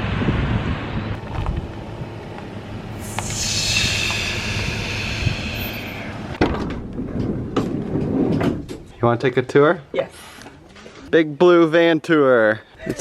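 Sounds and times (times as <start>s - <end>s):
wind buffeting microphone: 0.0s - 2.7s, 3.3s - 8.9s
van engine and road rumble: 0.0s - 9.0s
hissing rush: 2.9s - 6.4s.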